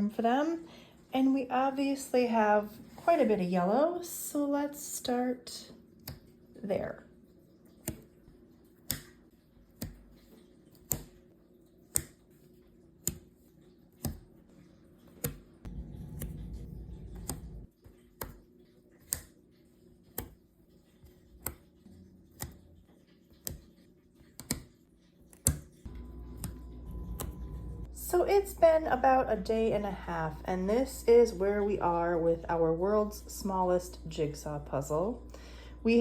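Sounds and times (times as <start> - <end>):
faint low hum: 5.0 - 18.0, 25.8 - 36.0
low rumble: 15.7 - 17.7, 25.9 - 33.0.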